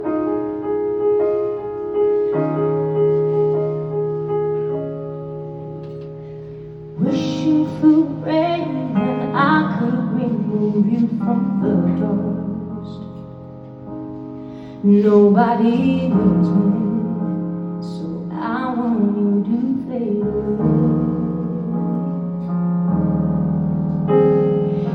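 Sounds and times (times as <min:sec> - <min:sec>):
piano chords: 0:00.0 - 0:24.9.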